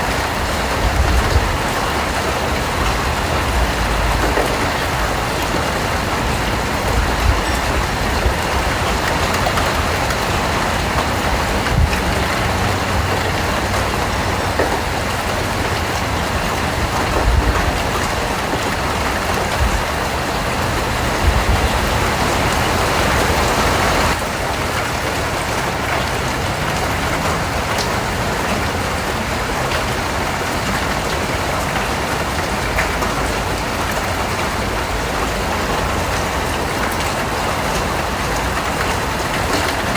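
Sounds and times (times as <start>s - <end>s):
raindrops striking a surface: 0.0s - 39.9s
steady rain: 0.0s - 39.9s.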